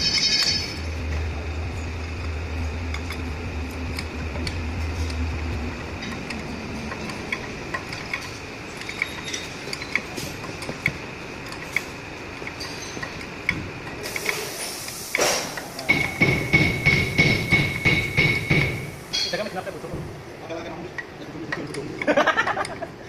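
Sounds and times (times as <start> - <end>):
steady low hum: 0.0 - 23.0
hand tools clinking on metal: 5.8 - 14.3, 15.6 - 19.6.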